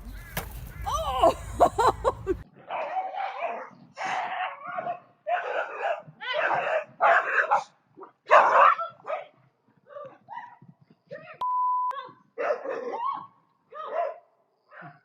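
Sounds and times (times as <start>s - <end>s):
dog barking: 2.6s - 10.6s, 12.4s - 15.0s.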